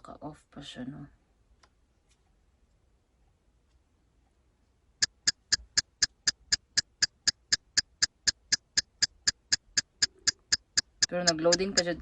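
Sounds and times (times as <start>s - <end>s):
rapid even ticking: 5.0s - 12.0s.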